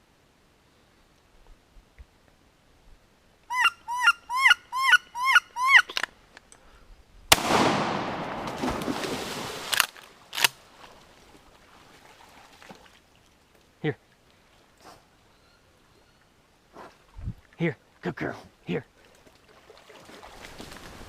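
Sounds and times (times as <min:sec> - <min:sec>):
duck squeals: 0:03.5 - 0:06.0
shotgun blast with echo: 0:07.3 - 0:09.0.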